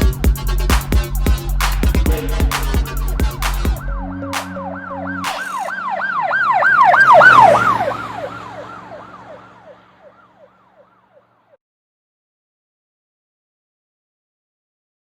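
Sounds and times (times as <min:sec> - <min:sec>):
music: 0:00.0 - 0:05.7
siren yelping: 0:02.1 - 0:11.3.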